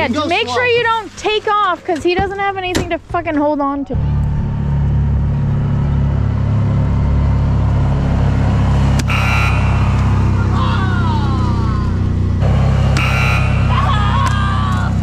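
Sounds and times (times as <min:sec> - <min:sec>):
car engine running: 0:03.8 - 0:15.0
falling whistle-like tones: 0:09.0 - 0:11.6, 0:13.0 - 0:14.4.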